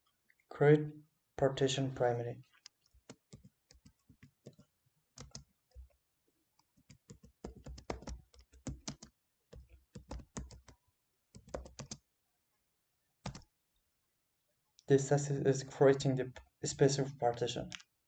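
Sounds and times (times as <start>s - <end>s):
keyboard typing clicks: 2.6s - 6.0s, 6.7s - 10.8s, 11.4s - 12.0s, 13.2s - 13.4s.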